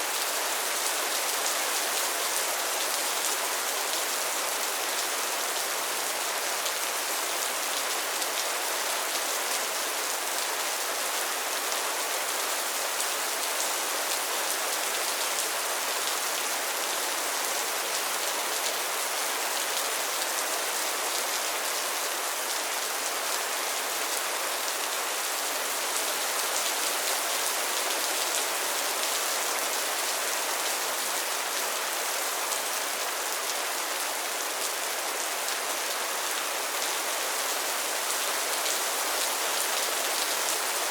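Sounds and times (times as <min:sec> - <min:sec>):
rain falling on pond water: 0:00.0 - 0:40.9.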